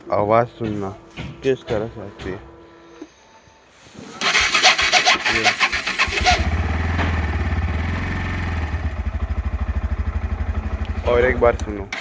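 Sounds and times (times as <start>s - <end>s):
electric starter chatter: 4.2s - 12.0s
motorcycle engine idling: 4.2s - 12.0s.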